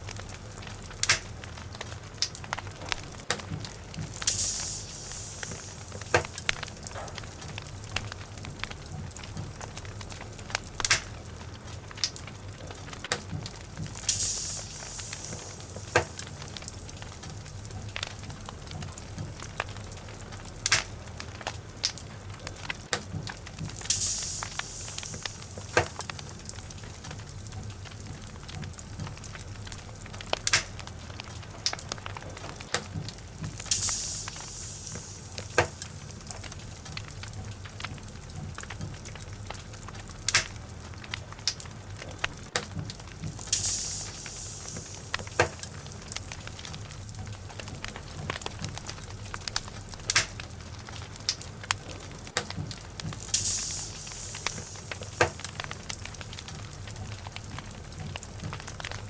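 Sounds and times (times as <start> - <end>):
fire low rumble: 0.0 - 59.0
wood crackling and popping: 0.0 - 59.0
brief hiss: 4.1 - 7.0, 14.0 - 16.8, 23.8 - 26.3, 33.6 - 36.3, 43.4 - 45.8, 53.3 - 55.6.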